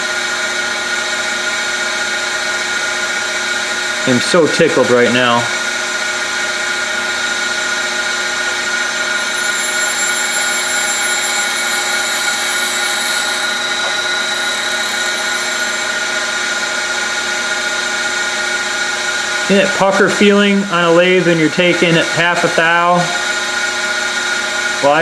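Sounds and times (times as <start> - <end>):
grinder whining over hiss: 9.0 - 16.3.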